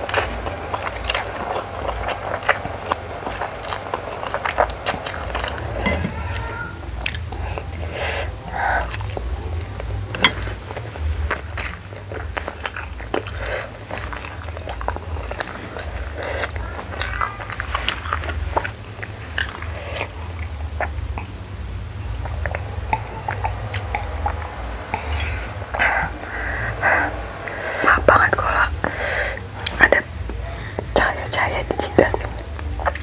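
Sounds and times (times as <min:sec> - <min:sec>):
chewing noodles: 0:00.0 - 0:21.4, 0:22.1 - 0:33.0.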